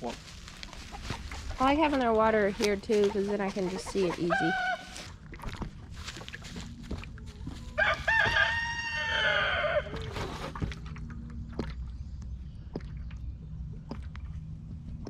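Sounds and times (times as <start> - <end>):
rooster crowing: 4.3 - 5.0, 7.6 - 10.1.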